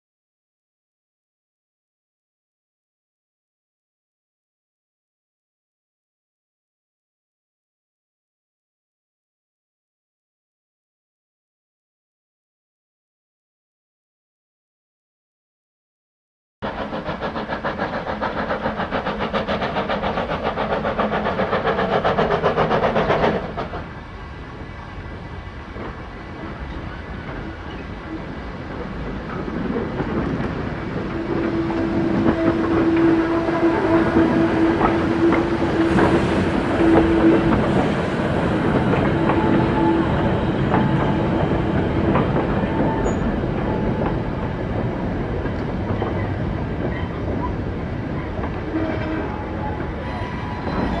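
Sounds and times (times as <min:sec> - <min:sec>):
fast-pulsing train running: 0:16.6 - 0:51.0
train rumbling: 0:16.6 - 0:51.0.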